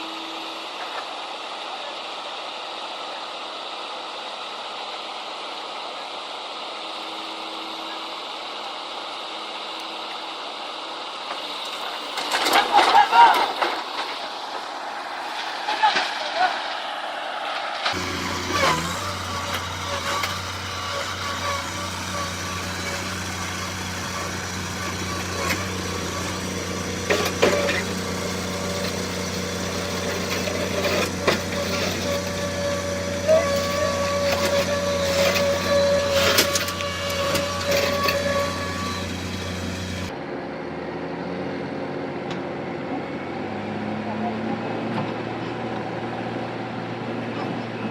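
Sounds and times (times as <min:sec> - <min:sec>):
vehicle engine running: 0:13.8 - 0:47.9.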